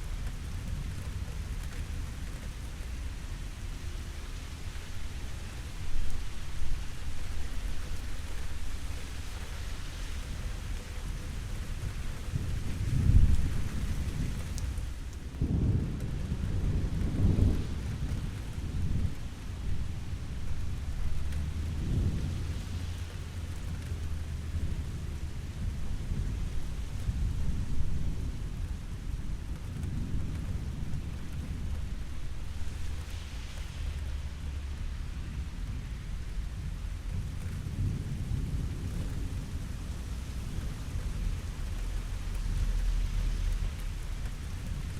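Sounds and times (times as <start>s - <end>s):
steady rain falling: 0.0s - 44.9s
rolling thunder rumbling: 12.1s - 44.9s.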